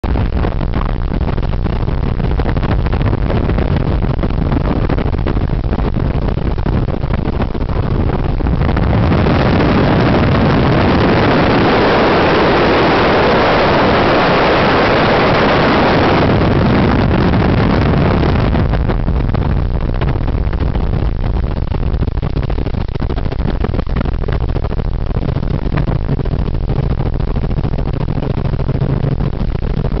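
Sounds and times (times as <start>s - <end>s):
loud rushing noise: 7.4s - 18.9s.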